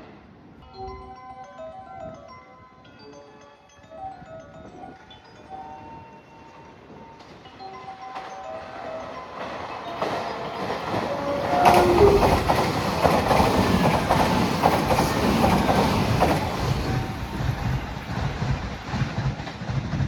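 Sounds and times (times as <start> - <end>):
train passing on track: 4.8 - 20.0
wheels clicking over rail joints: 8.1 - 20.0.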